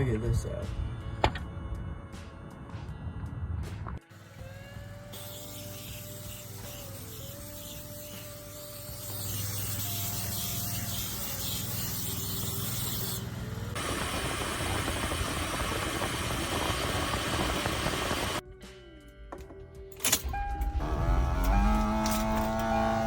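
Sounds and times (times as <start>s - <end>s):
loud rough noise: 12.5s - 18.4s
vehicle engine running: 12.5s - 18.4s, 20.5s - 23.0s.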